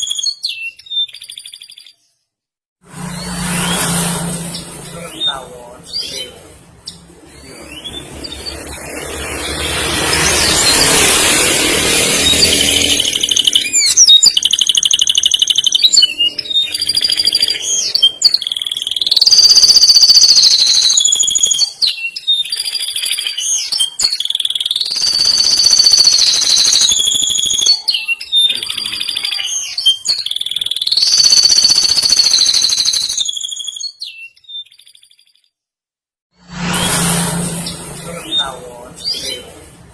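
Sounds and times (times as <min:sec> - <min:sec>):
canary singing: 0:00.0 - 0:02.2, 0:03.2 - 0:35.4, 0:37.6 - 0:39.6.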